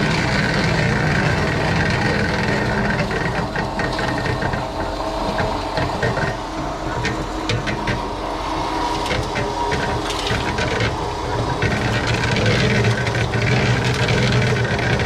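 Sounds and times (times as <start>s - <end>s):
engine running steadily: 0.0s - 15.0s
scraping and clicking: 8.9s - 15.0s.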